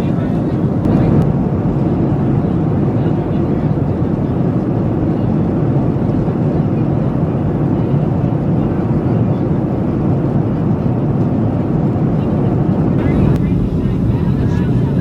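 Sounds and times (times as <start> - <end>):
jet engine rumble: 0.0 - 15.0.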